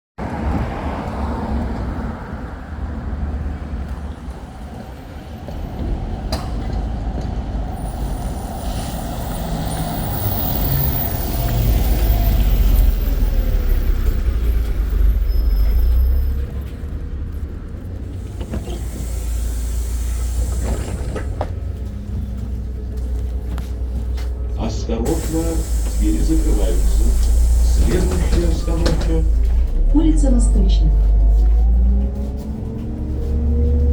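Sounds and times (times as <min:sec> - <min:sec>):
bus engine and road rumble: 0:00.2 - 0:33.9
air hiss: 0:18.3 - 0:21.4, 0:25.0 - 0:29.7.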